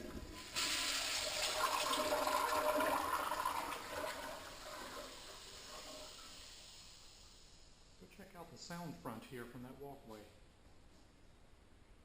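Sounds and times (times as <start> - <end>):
toilet flushing: 0.0 - 7.4.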